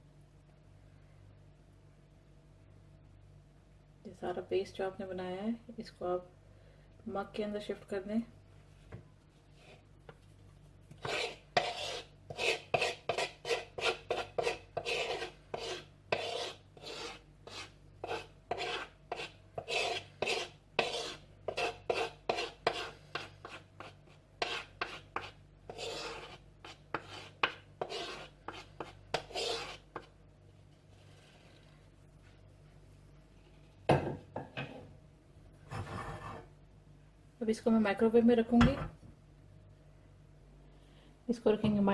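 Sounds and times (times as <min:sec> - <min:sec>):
utensil scraping batter from bowl: 0:10.9 - 0:30.1, 0:30.7 - 0:31.9.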